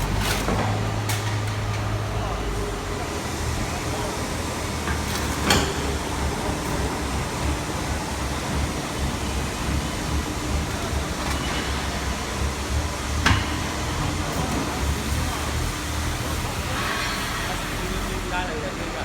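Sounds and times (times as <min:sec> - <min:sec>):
baler machine hum: 0:00.0 - 0:19.0.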